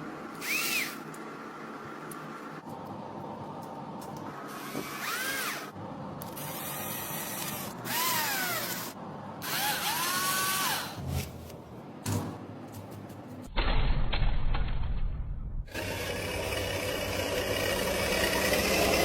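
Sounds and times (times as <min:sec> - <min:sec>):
power drill whining: 0:06.4 - 0:11.0.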